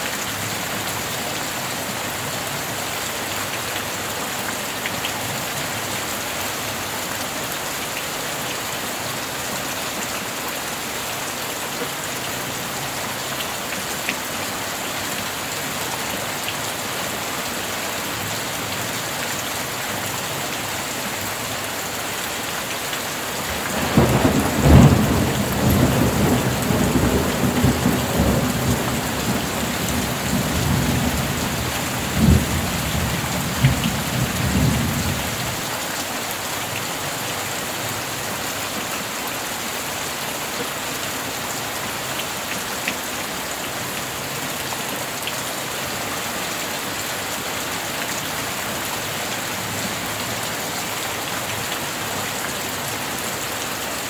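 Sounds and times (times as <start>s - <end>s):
steady rain: 0.0s - 54.0s
thunder rumbling: 23.5s - 35.4s.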